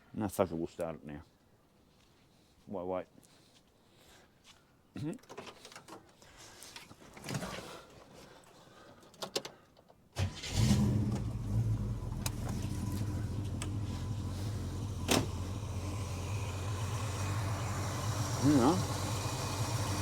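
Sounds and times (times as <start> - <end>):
car engine starting and idling: 10.2 - 20.0.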